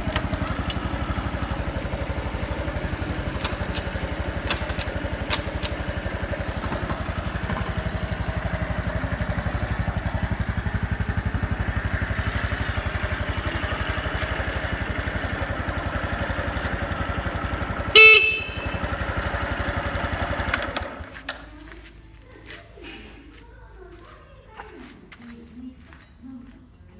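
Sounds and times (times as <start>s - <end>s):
motorcycle engine idling: 0.0s - 21.9s
horn beep: 17.7s - 19.6s.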